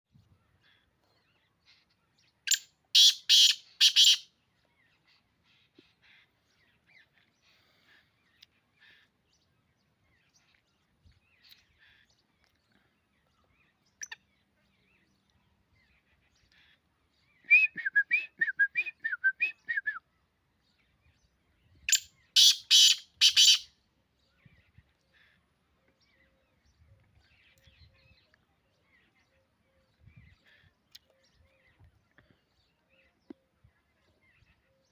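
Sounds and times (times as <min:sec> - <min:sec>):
bird chirping: 0:00.2 - 0:07.4, 0:18.9 - 0:24.9
bird harsh grating calls: 0:02.5 - 0:04.2, 0:21.9 - 0:23.7.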